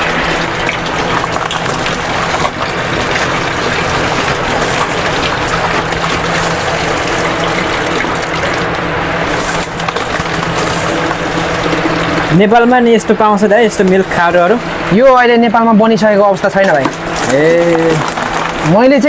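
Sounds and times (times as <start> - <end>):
water splashing into a container: 0.0 - 12.8, 16.4 - 19.0.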